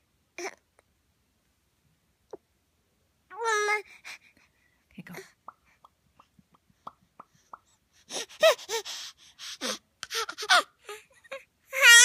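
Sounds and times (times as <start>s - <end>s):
mouth clicks: 5.4s - 7.8s.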